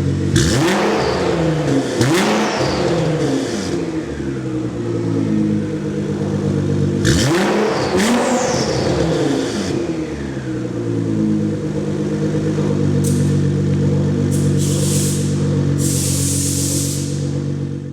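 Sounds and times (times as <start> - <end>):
car engine idling and revving: 0.0 - 17.9.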